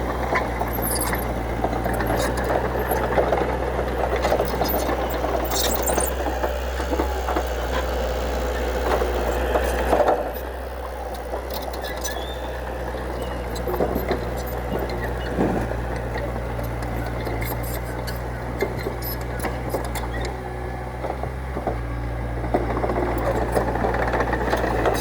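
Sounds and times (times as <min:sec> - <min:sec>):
diesel machine engine running: 0:00.0 - 0:25.0
knocks and clanks: 0:13.5 - 0:20.0.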